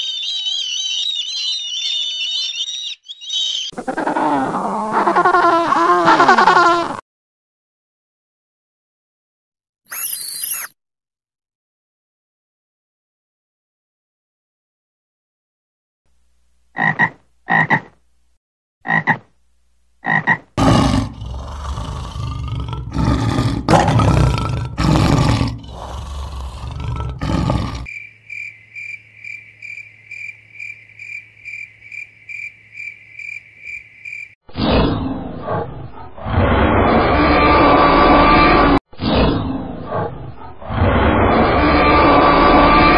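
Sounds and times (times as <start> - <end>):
pulsing high-pitched call: 0.0 - 3.7, 9.9 - 10.7
short high-pitched animal calls: 9.9 - 10.8
loud rough animal calling: 20.6 - 27.9.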